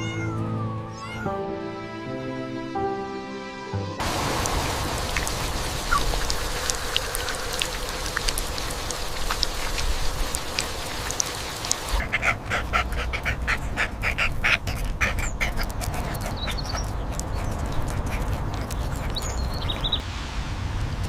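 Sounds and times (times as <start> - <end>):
steady low rumble: 4.0 - 14.0, 19.4 - 21.0
dog panting: 6.2 - 20.0.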